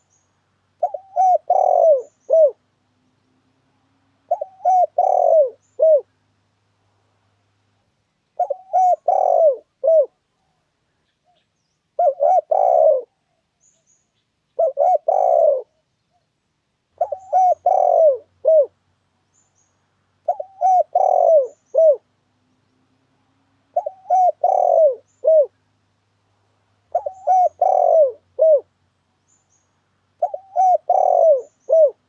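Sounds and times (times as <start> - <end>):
small bird chirping: 0.0 - 3.5, 4.3 - 6.1, 10.9 - 16.4, 17.0 - 23.0, 23.7 - 25.6, 26.9 - 32.0
dove cooing: 0.8 - 2.7, 4.2 - 6.2, 8.4 - 10.2, 12.0 - 13.4, 14.6 - 15.8, 17.0 - 18.8, 20.2 - 22.1, 23.6 - 25.6, 26.9 - 28.7, 30.2 - 32.0.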